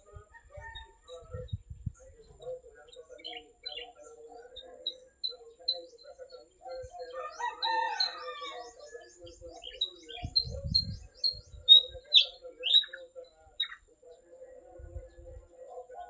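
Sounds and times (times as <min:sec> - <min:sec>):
small birds chirping: 0:00.0 - 0:16.0
rooster crowing: 0:07.1 - 0:08.8.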